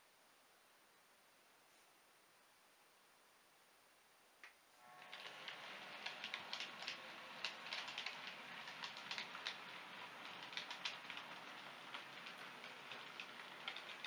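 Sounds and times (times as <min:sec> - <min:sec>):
model train running rattle: 0:04.9 - 0:14.0
wheels clicking over rail joints: 0:05.0 - 0:14.0.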